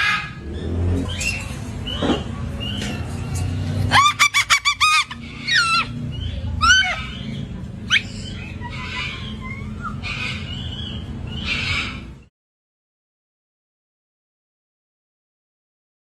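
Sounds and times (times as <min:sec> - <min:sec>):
low rumble: 0:00.0 - 0:04.2
cockatoo calling and squawking: 0:00.0 - 0:12.3.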